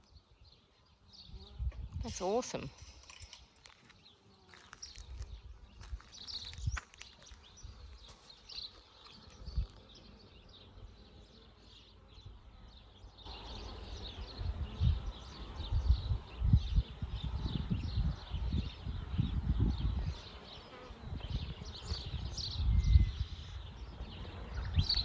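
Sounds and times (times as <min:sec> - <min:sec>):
bees buzzing: 0:08.8 - 0:22.6
low rumbling on microphone: 0:13.3 - 0:20.2.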